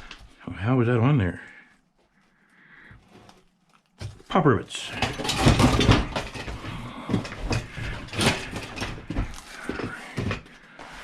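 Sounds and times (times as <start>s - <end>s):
hand tools knocking and scraping: 4.0s - 11.0s.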